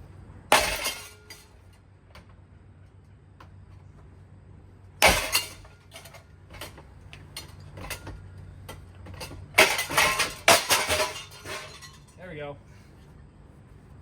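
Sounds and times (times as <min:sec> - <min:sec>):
low steady hum: 0:00.0 - 0:14.0
clinks and rattles: 0:00.5 - 0:01.8, 0:05.0 - 0:12.4
metal and glass clattering: 0:00.5 - 0:01.8, 0:05.0 - 0:12.2.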